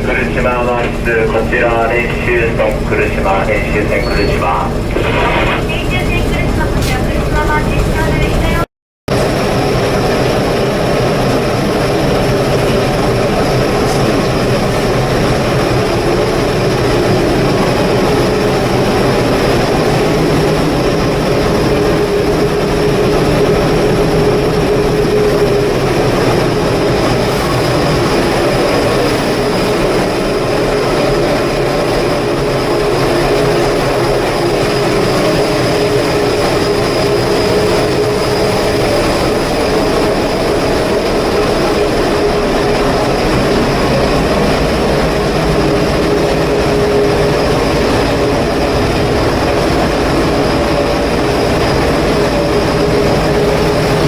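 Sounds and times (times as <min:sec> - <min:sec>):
ship machinery drone: 0:00.0 - 0:54.0
steady high whine: 0:00.0 - 0:54.0.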